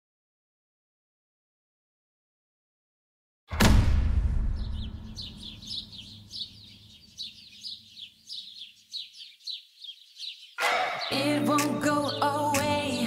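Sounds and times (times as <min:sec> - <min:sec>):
low rumble: 0:03.6 - 0:06.2
small bird chirping: 0:04.6 - 0:12.5.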